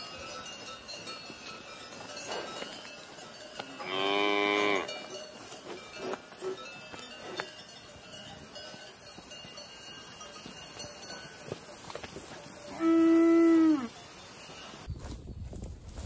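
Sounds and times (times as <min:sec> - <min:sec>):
cowbells ringing: 0:00.0 - 0:15.0
cow mooing: 0:03.8 - 0:04.9, 0:12.7 - 0:13.9.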